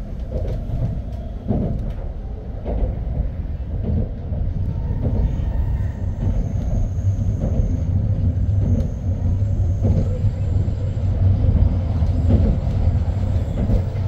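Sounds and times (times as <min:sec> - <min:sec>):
train wheels rumbling: 0:00.0 - 0:14.0.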